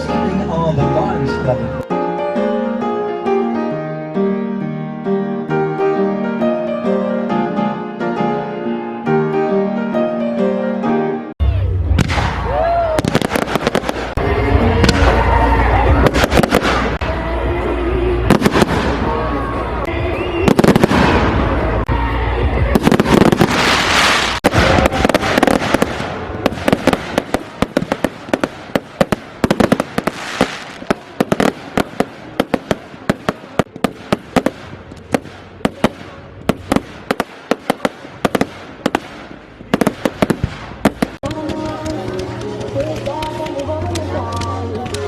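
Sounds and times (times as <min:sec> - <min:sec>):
fireworks bangs and crackle: 0:11.8 - 0:45.0.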